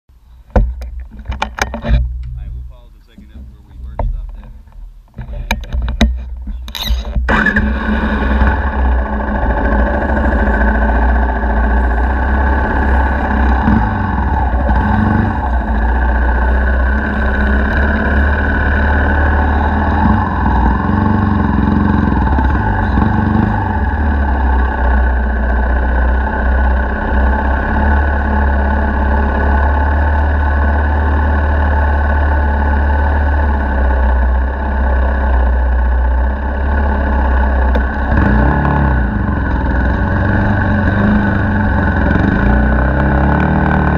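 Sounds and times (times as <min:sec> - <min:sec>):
dirt bike engine revving: 0:01.4 - 0:43.9.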